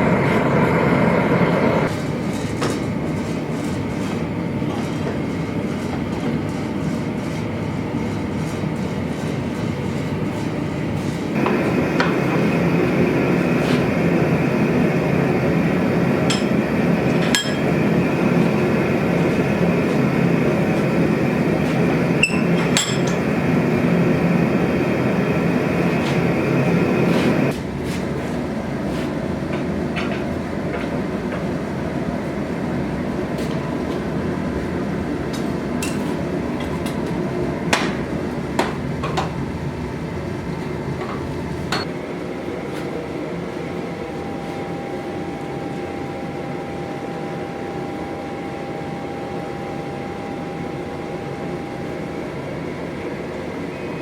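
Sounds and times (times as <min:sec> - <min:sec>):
loud machine running: 0:00.0 - 0:02.0, 0:10.8 - 0:27.6
steady hum: 0:00.0 - 0:54.0.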